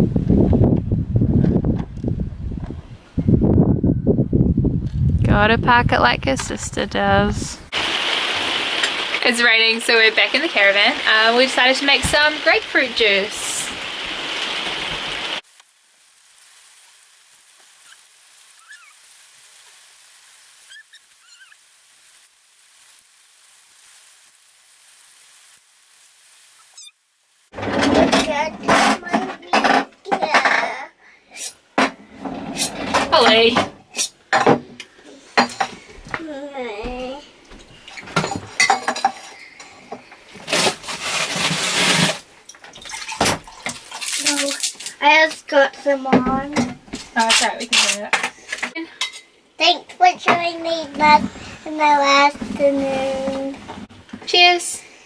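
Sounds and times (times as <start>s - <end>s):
faint outdoor hiss: 4.9s - 55.0s
bird chirps: 18.6s - 19.0s, 20.7s - 21.6s.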